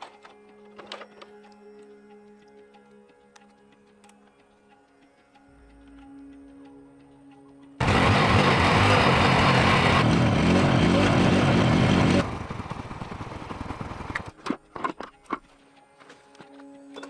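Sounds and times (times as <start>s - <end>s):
motor running loudly: 7.8s - 14.4s.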